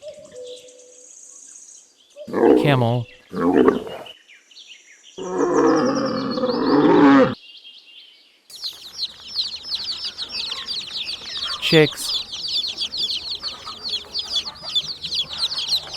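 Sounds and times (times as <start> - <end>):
camel groaning call: 5.2 - 7.4
chicks peeping: 8.5 - 15.9.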